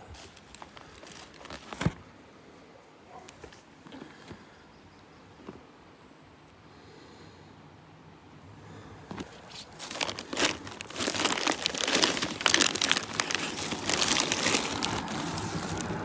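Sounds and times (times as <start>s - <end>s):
close rustling and crinkling: 0.0s - 2.0s, 9.1s - 16.0s.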